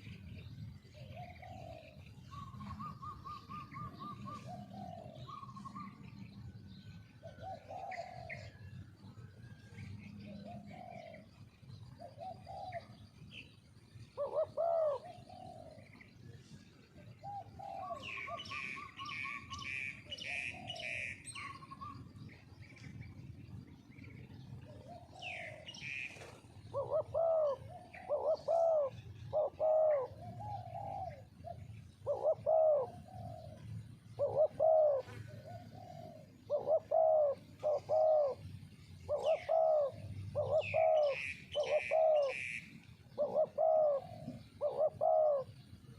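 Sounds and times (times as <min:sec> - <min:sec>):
doves cooing: 0:00.0 - 0:45.9
small bird chirping: 0:17.2 - 0:45.9.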